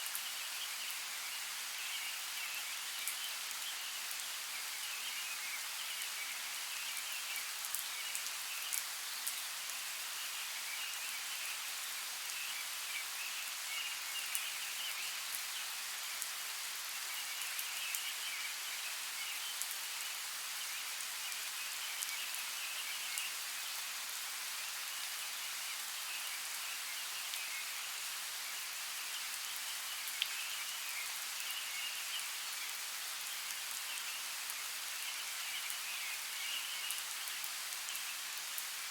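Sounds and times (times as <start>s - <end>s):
rain drops ticking: 6.8s - 9.8s, 29.4s - 31.3s.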